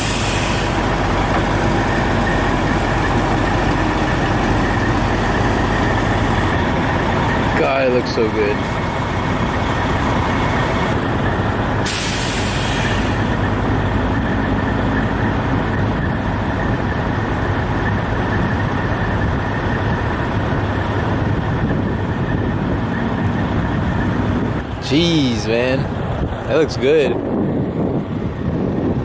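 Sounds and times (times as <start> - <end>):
air brake hiss: 0.0 - 0.8, 11.8 - 13.3
diesel engine idling: 0.0 - 29.0.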